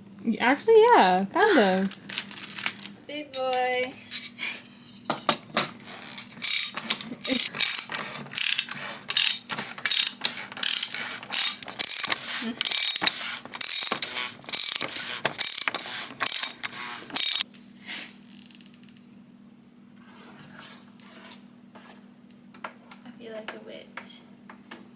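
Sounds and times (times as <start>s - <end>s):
ratchet wrench clicking: 5.9s - 17.4s.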